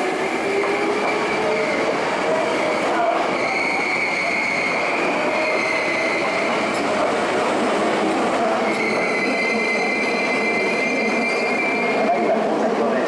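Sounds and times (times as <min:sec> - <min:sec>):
train rolling rumble: 0:00.0 - 0:13.0
high-pitched wheel squeal: 0:03.3 - 0:06.6, 0:08.6 - 0:12.3.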